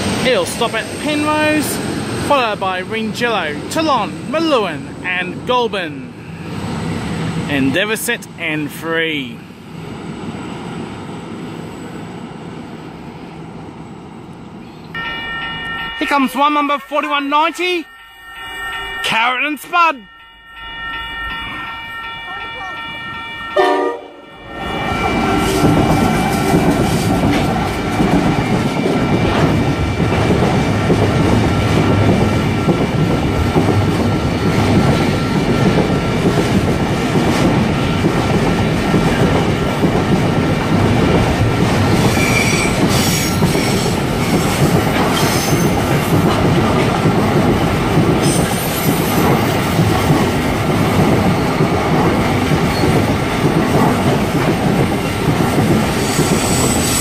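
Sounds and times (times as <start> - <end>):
train wheels rumbling on rails: 0.0 - 16.2, 24.5 - 57.0
wheel squeal: 42.0 - 43.9, 56.0 - 57.0.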